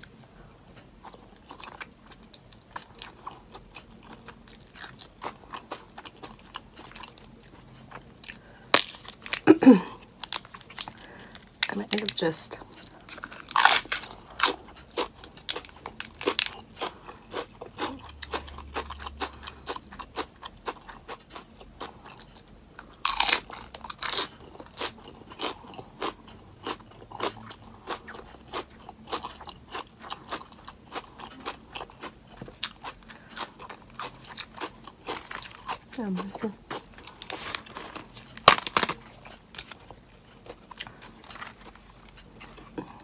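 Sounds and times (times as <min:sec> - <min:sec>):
crunching bites: 0:08.7 - 0:09.4, 0:13.0 - 0:21.4, 0:23.0 - 0:35.9, 0:36.7 - 0:42.3.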